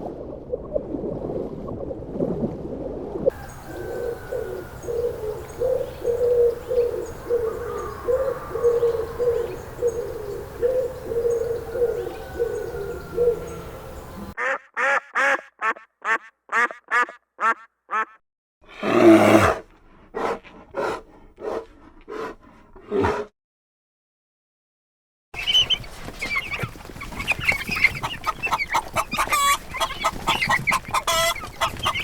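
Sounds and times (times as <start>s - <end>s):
outdoor background noise: 0.8s - 15.3s, 25.4s - 32.0s
ducks quacking: 14.3s - 18.2s, 25.4s - 32.0s.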